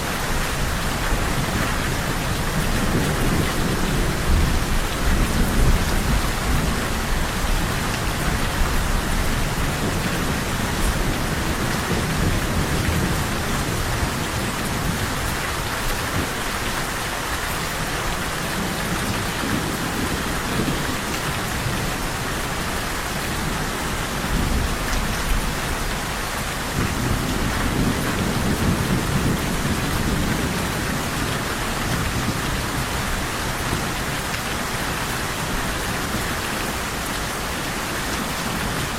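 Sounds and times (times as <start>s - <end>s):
heavy rain falling: 0.0s - 38.9s
low rolling thunder: 0.6s - 15.3s, 18.3s - 33.9s.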